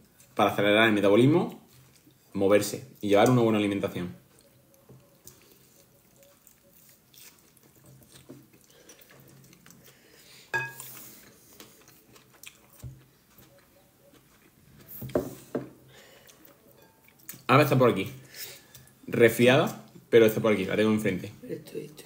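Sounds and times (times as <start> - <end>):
man chewing salad: 0.0 - 0.4, 1.5 - 3.1, 4.2 - 17.5.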